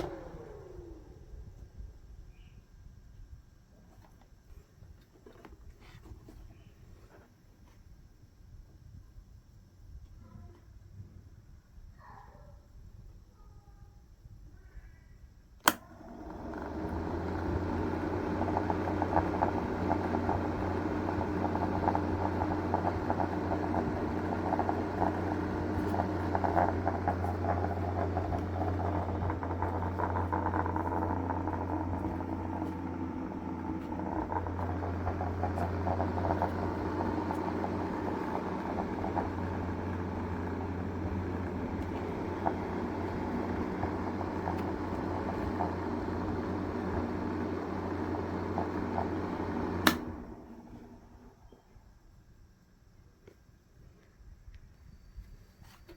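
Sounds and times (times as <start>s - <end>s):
switch click: 15.6s - 15.9s, 49.8s - 50.1s
small electric motor humming: 15.8s - 50.8s.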